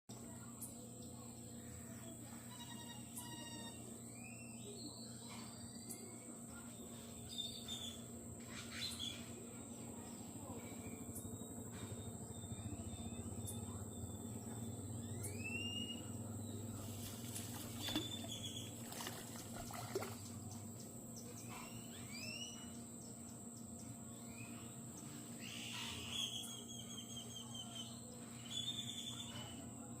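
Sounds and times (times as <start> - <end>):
chirping and whistling calls: 2.4 - 9.4, 10.6 - 20.6, 21.2 - 24.7, 25.4 - 29.7.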